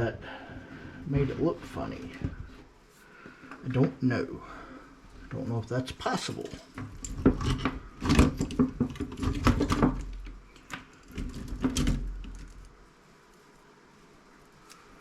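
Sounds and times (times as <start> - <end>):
clicks and rattles of parts handled: 6.4 - 12.7.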